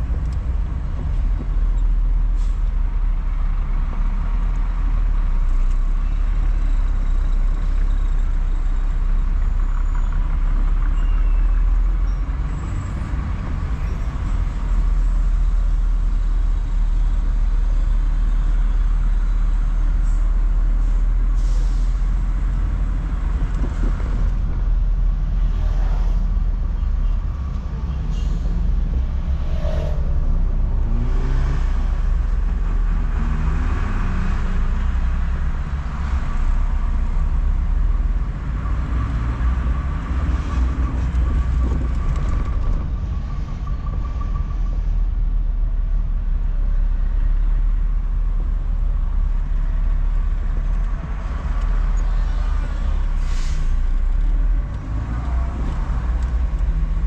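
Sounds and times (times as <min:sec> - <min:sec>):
car engine hum and road rumble: 0:00.0 - 0:57.0
brief hisses: 0:53.2 - 0:53.8.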